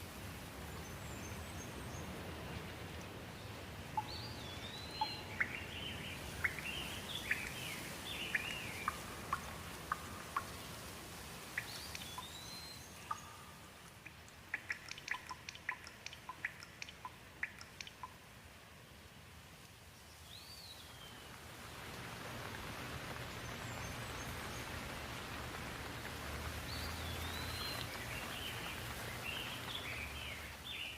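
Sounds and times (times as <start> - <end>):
rain hissing: 0.0 - 30.9
water drips: 2.1 - 18.6, 23.3 - 30.9
bird calling: 4.0 - 10.6, 11.6 - 18.1.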